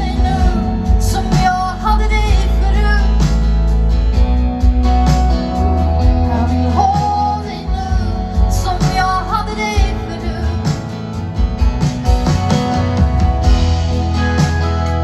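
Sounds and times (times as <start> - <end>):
woman singing: 0.0 - 3.6, 6.0 - 11.0
live pop band playing: 0.0 - 15.0.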